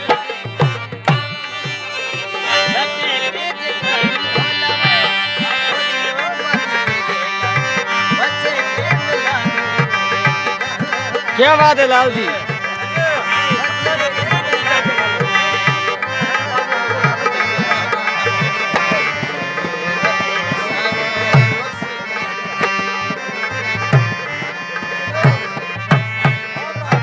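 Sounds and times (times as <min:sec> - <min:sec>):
harmonium chords: 0:00.0 - 0:27.0.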